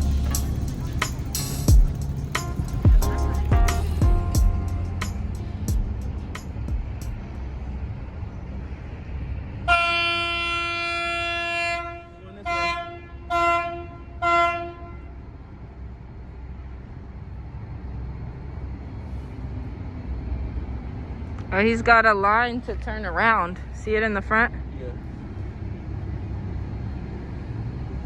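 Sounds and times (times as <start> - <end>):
low engine rumble: 0.0 - 28.0
boat horn blasts: 9.7 - 15.2.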